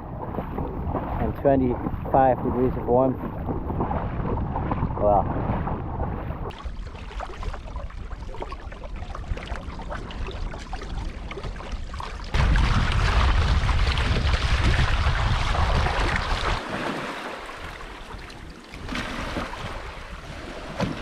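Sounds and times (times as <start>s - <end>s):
wind buffeting microphone: 0.0s - 16.7s
waves on open water: 0.0s - 21.0s.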